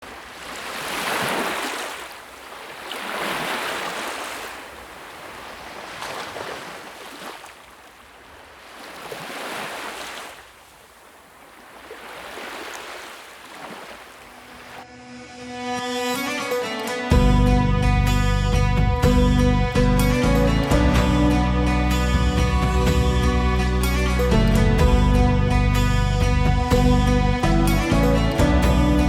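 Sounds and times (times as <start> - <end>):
sea waves breaking on shore: 0.0 - 14.9.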